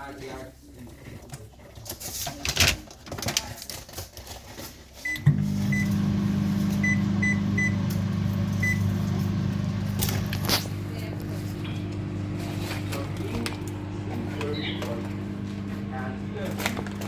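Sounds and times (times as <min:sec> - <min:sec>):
microwave keypad beeps: 0:05.1 - 0:06.0, 0:06.7 - 0:09.2
microwave oven humming: 0:05.1 - 0:17.0.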